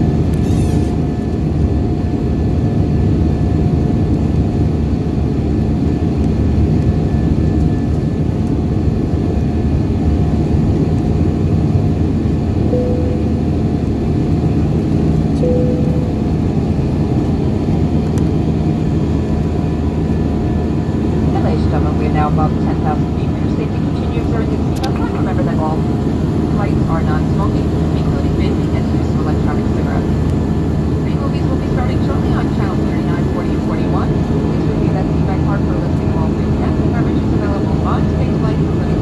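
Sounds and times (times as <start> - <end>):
airplane cabin drone: 0.0 - 39.0
faint brief tones: 12.7 - 13.9, 15.4 - 16.6.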